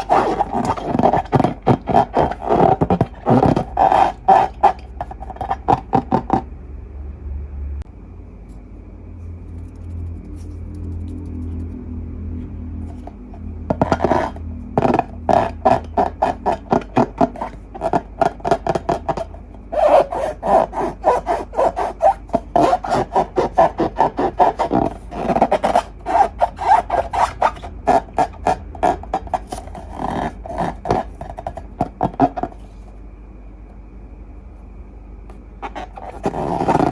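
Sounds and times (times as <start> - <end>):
slime squishing and rubbing: 0.0 - 6.5, 12.8 - 32.9, 35.6 - 36.9.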